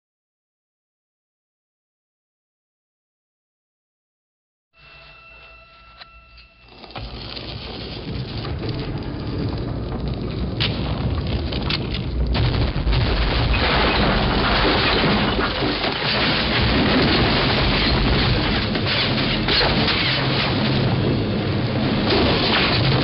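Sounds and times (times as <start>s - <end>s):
boulder rolling rumble: 6.7s - 23.0s
crunching crackling debris: 6.7s - 23.0s
heavy impacts: 6.8s - 23.0s.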